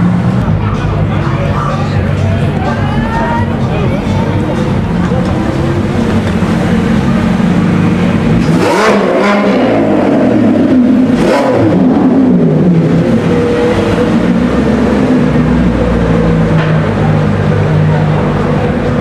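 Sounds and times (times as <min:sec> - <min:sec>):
car engines accelerating and revving: 0:00.0 - 0:19.0.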